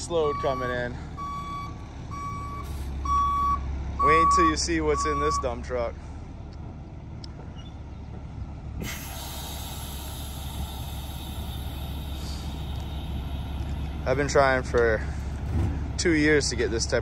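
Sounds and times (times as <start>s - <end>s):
diesel truck engine rumbling: 0.0s - 17.0s
steady hiss: 8.8s - 14.1s.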